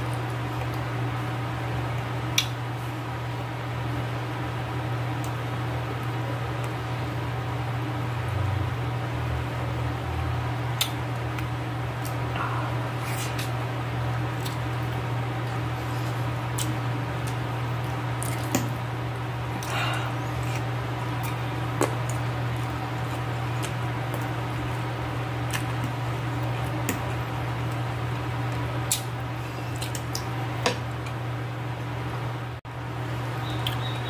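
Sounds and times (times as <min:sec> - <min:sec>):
steady low hum: 0:00.0 - 0:34.0
wet chewing: 0:14.3 - 0:18.8, 0:19.5 - 0:27.9.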